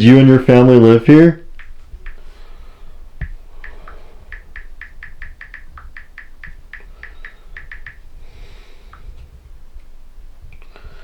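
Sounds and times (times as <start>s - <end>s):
touchscreen keyboard taps: 3.2s - 8.0s.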